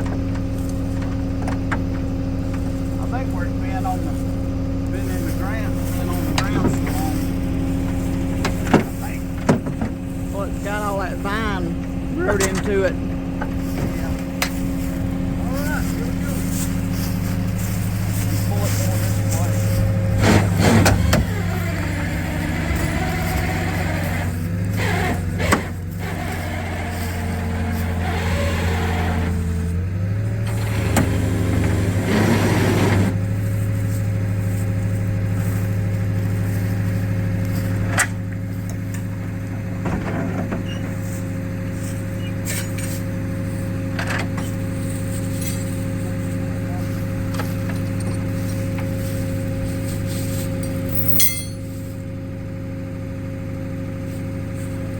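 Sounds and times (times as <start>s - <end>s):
vehicle engine running: 0.0s - 54.9s.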